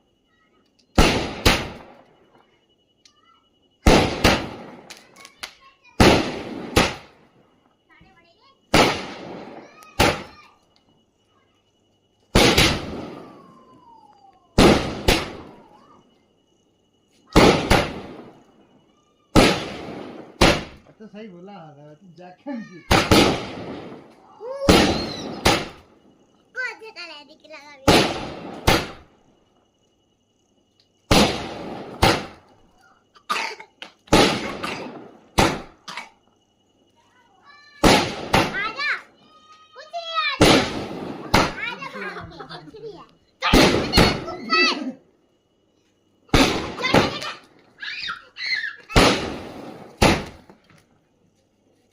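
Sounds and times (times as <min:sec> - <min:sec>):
firecrackers banging: 0:00.9 - 0:02.0, 0:03.8 - 0:07.2, 0:08.0 - 0:10.6, 0:12.3 - 0:15.9, 0:17.3 - 0:18.4, 0:19.3 - 0:20.9, 0:22.8 - 0:25.9, 0:27.7 - 0:29.1, 0:31.1 - 0:32.6, 0:33.4 - 0:35.9, 0:37.5 - 0:39.1, 0:39.7 - 0:44.9, 0:46.3 - 0:50.8.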